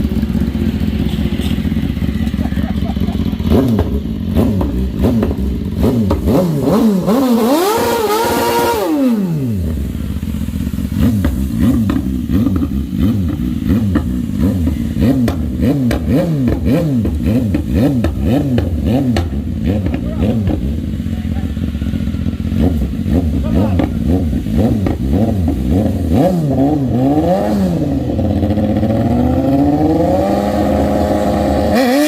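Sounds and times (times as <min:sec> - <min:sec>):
engine revving: 0:00.9 - 0:32.0.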